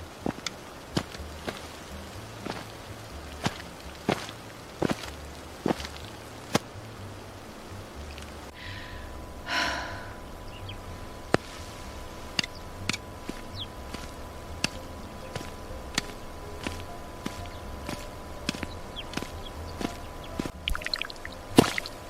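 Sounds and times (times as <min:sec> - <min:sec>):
footsteps outdoors: 0:00.0 - 0:22.0
low rumble: 0:01.1 - 0:22.0
person sighing: 0:08.6 - 0:10.2.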